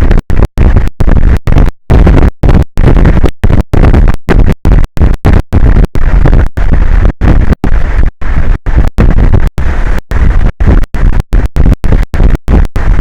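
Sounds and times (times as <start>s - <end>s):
distorted rushing noise: 0.0s - 13.0s.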